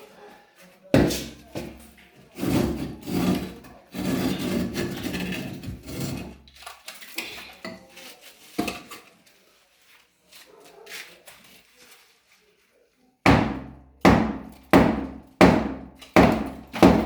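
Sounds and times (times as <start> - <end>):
hard objects scraping and clattering: 1.0 - 9.5.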